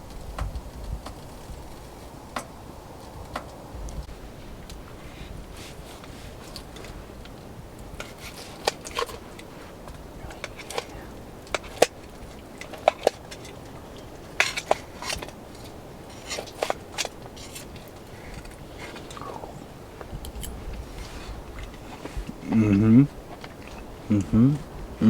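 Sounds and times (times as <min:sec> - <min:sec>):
cutlery clinking on dishes: 0:10.4 - 0:19.4.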